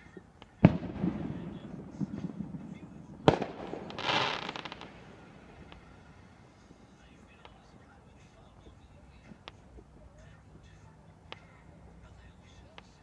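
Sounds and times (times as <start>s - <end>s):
firework crackling: 0.4s - 7.7s
firework bangs: 0.6s - 6.8s.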